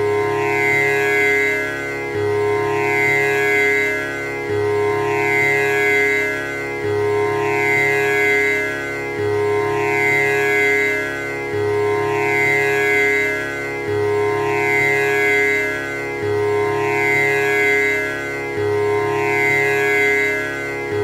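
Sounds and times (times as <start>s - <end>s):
tanpura drone: 0.0s - 21.0s.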